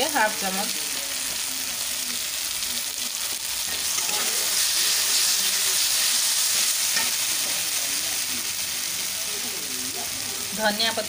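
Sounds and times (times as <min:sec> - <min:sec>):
masala sizzling in hot oil: 0:00.0 - 0:11.0
spatula stirring in metal pan: 0:03.7 - 0:07.8.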